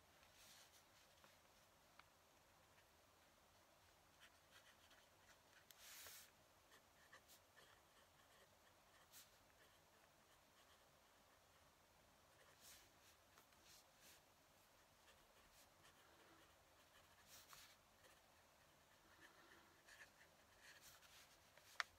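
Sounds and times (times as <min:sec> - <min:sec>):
pen nib scratching on paper: 0:04.2 - 0:11.7, 0:14.8 - 0:21.9.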